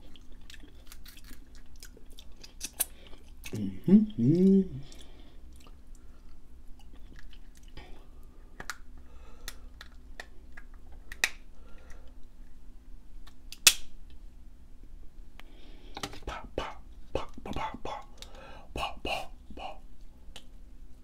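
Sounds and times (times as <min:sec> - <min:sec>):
close chewing: 0:00.0 - 0:03.6, 0:04.8 - 0:07.9.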